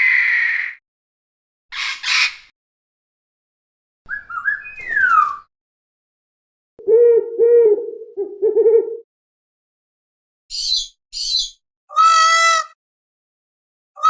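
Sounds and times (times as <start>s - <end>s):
whistled call with falling slide: 4.1s - 5.5s.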